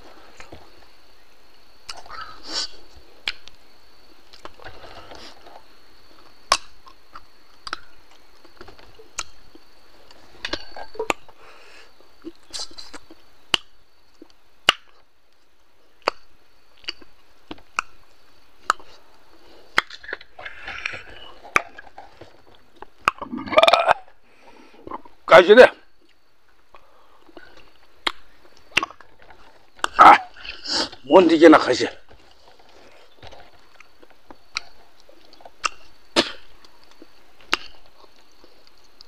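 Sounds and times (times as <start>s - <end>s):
man chewing with open mouth: 6.2s - 11.4s, 16.0s - 18.0s, 18.6s - 24.2s, 26.0s - 31.0s, 32.4s - 39.0s
wet lip-smacking clicks: 6.5s - 7.9s, 12.7s - 14.9s, 35.6s - 35.8s, 36.6s - 37.8s.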